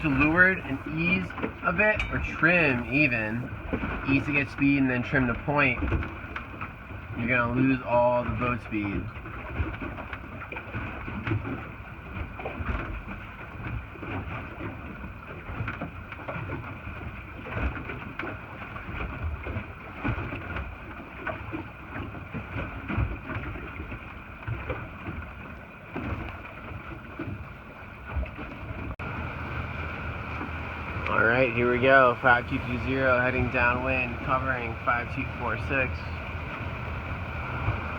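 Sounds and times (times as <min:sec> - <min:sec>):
faint steady hum: 0:00.0 - 0:01.4, 0:02.0 - 0:03.5, 0:29.0 - 0:37.9
wind buffeting microphone: 0:00.0 - 0:04.5, 0:28.1 - 0:37.9.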